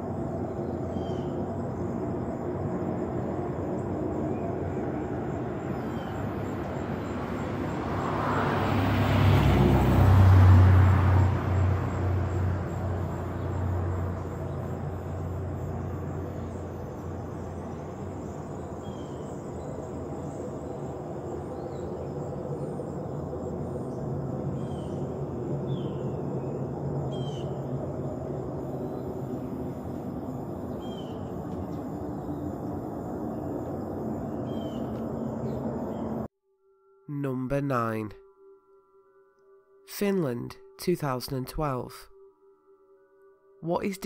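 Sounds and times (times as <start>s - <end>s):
echoing low rumble in the sky: 0.0s - 7.7s, 11.9s - 36.3s.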